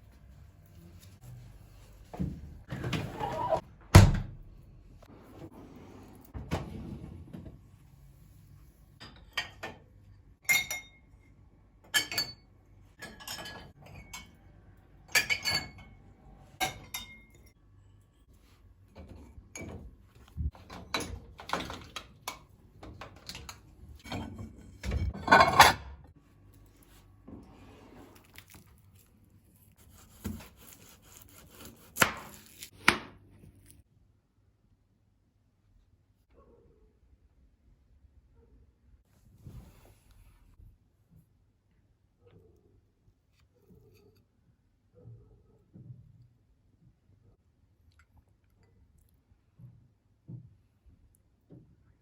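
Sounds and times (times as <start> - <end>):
kitchenware clinking and knocking: 11.8 - 14.4, 20.5 - 26.1.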